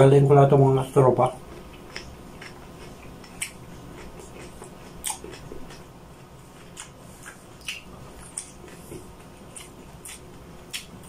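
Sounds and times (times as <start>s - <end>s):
close chewing: 1.3s - 11.0s
sharp mouth clicks: 6.7s - 8.6s
wet mouth smacks: 6.8s - 8.6s.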